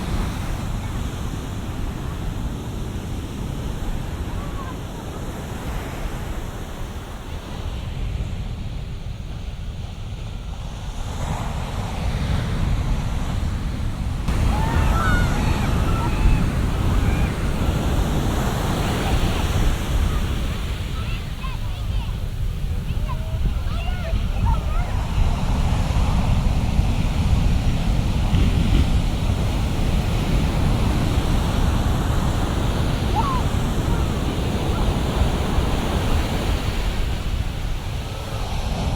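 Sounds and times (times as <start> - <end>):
waves breaking: 0.0 - 38.9
wind buffeting microphone: 0.0 - 38.9.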